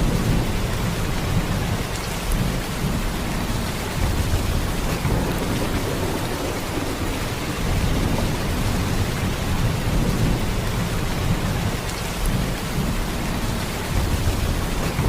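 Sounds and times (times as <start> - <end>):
heavy rain downpour: 0.0 - 15.0.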